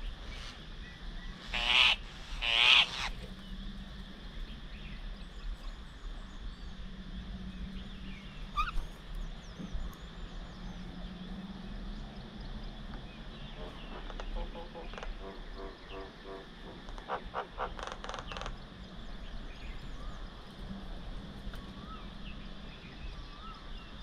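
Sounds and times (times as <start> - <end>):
loud bird calls: 0.0 - 3.8, 7.5 - 12.2, 12.8 - 20.4
faint bird chirps: 7.4 - 16.4.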